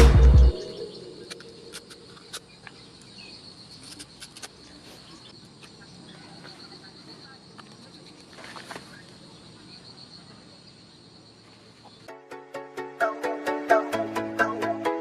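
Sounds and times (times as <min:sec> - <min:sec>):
background music: 0:00.0 - 0:01.7, 0:12.1 - 0:15.0
high insect trill: 0:00.5 - 0:12.2.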